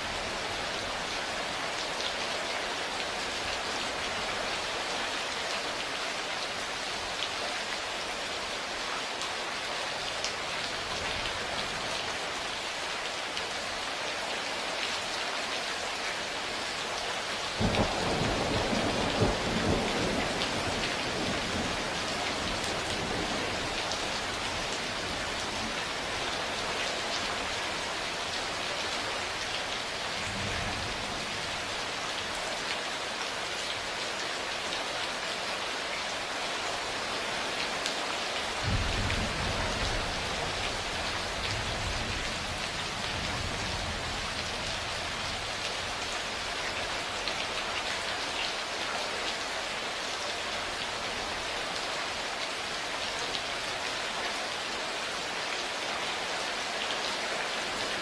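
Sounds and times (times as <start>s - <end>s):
heavy rain falling: 0.0s - 58.0s
thunder clap and rumble: 38.6s - 40.0s.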